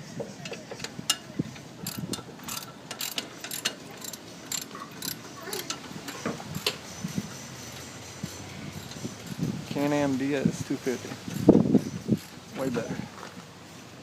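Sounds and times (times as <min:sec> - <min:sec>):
metallic clicks and clanks of tools: 0:00.4 - 0:06.9.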